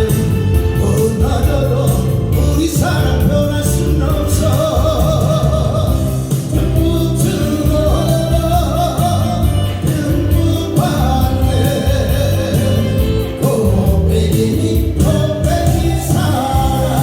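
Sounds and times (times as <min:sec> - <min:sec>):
backing band track: 0:00.0 - 0:17.0
person singing: 0:00.0 - 0:17.0.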